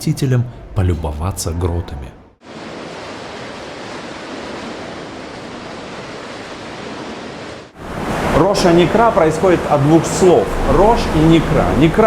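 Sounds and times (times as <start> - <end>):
sea surf rushing: 2.4 - 12.0.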